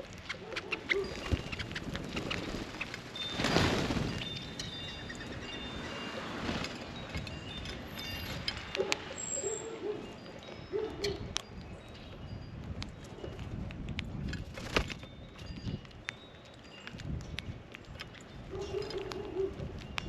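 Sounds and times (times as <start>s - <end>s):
small birds chirping: 0.1s - 13.4s.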